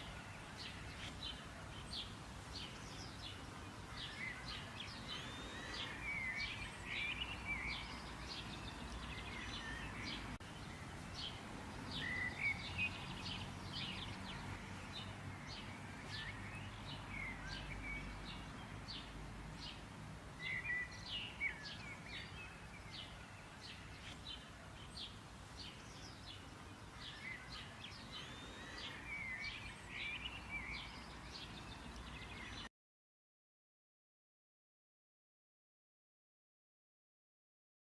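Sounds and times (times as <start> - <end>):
birds chirping and calling: 0.0 - 32.7.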